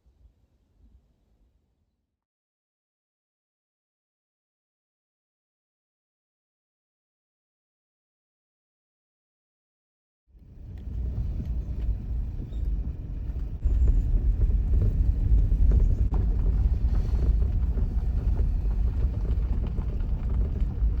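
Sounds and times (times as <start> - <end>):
loud steady low rumble: 10.4 - 21.0.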